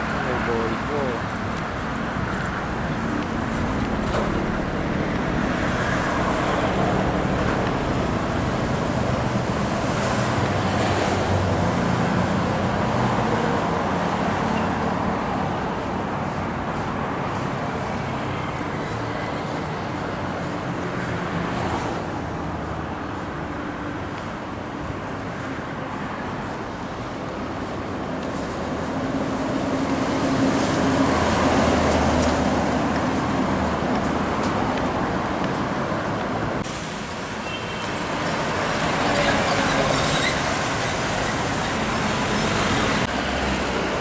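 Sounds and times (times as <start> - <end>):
expressway traffic: 0.0 - 44.0
heavy trucks passing: 0.0 - 44.0.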